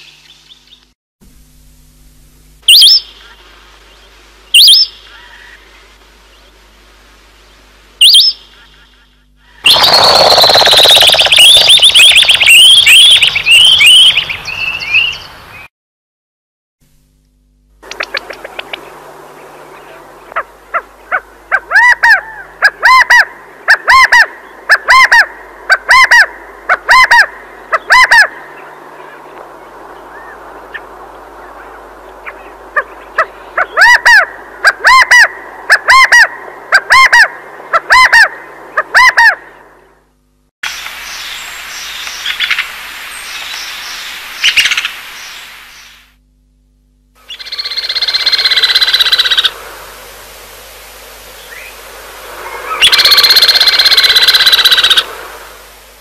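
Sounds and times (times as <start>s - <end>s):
bird yelping call: 4.5s - 5.6s, 8.0s - 15.2s, 20.3s - 29.2s, 32.2s - 39.6s, 47.3s - 49.5s, 52.4s - 55.0s.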